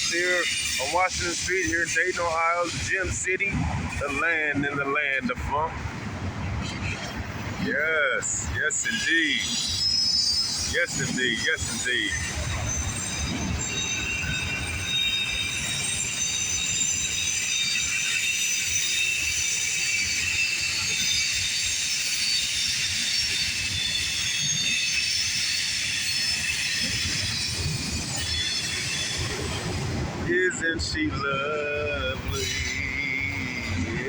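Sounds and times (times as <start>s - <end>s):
high-pitched wheel squeal: 0.0s - 2.8s, 8.7s - 30.1s, 31.2s - 34.0s.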